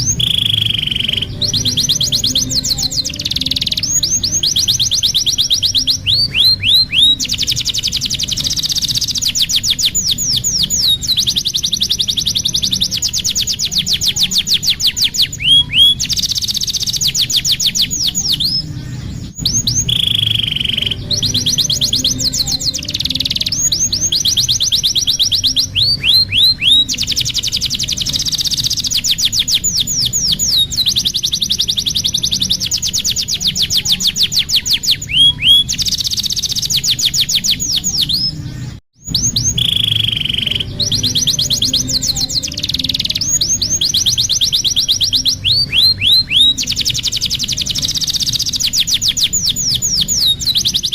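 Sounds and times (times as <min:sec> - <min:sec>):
low steady hum: 0:00.0 - 0:08.6
canary singing: 0:00.0 - 0:50.9.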